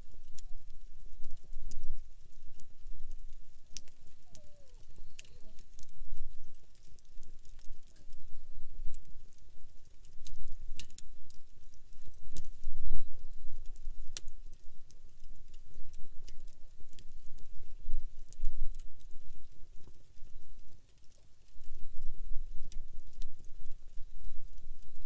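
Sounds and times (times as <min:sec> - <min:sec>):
campfire crackling and popping: 0:00.0 - 0:25.0
low fire rumble: 0:00.0 - 0:25.0.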